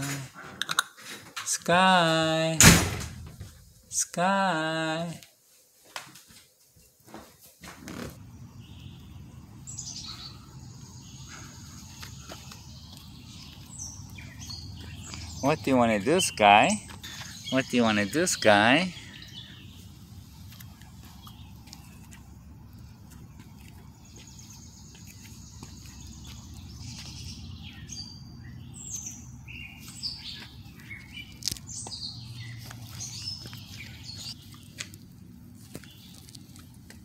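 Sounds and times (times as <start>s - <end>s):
birds chirping: 7.9s - 37.0s
low outdoor rumble: 7.9s - 37.0s.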